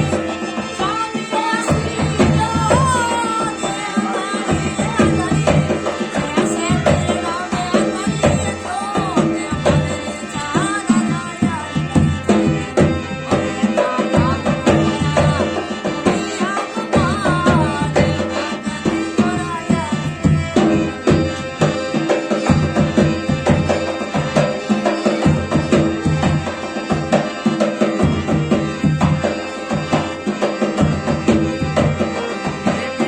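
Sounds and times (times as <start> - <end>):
bending melody line: 0.0 - 33.0
hand drum beating: 0.0 - 33.0.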